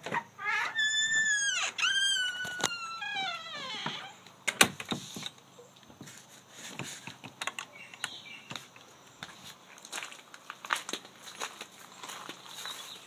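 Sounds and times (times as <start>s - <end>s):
footsteps crunching through dry leaves: 9.2s - 13.0s.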